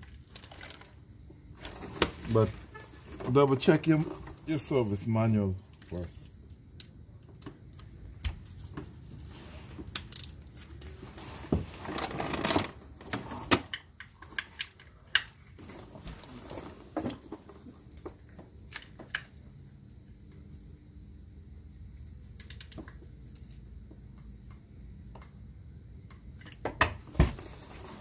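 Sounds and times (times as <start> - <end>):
scraping or rustling: 10.6 - 13.6.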